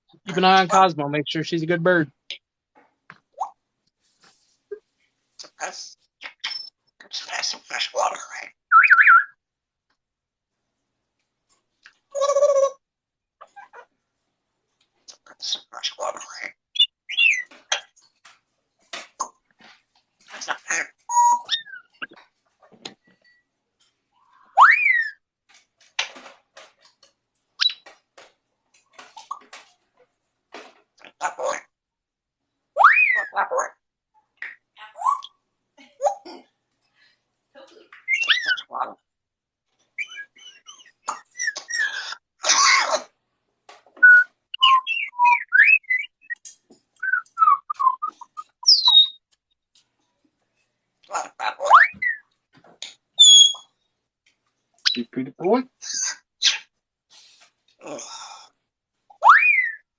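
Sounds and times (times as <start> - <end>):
parrot whistling and chirping: 8.7 - 9.4, 16.8 - 17.6, 21.1 - 22.1, 24.6 - 25.2, 27.6 - 27.8, 32.8 - 33.4, 35.0 - 35.3, 38.0 - 38.8, 40.0 - 42.1, 44.0 - 46.4, 47.0 - 49.2, 51.6 - 52.3, 53.2 - 53.7, 59.2 - 59.9
parrot whistling: 24.6 - 25.2, 38.1 - 38.7, 40.0 - 42.1, 44.0 - 46.4, 53.2 - 53.7, 59.2 - 59.8
parrot clicks and chirps: 26.9 - 28.0, 44.0 - 49.4, 51.7 - 53.7.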